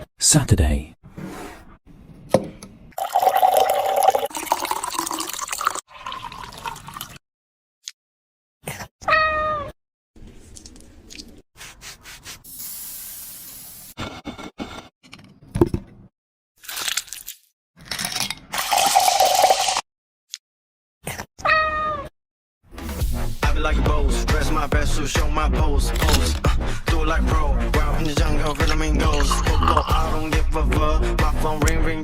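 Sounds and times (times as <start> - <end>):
cat meowing: 9.0 - 9.8, 21.4 - 22.1.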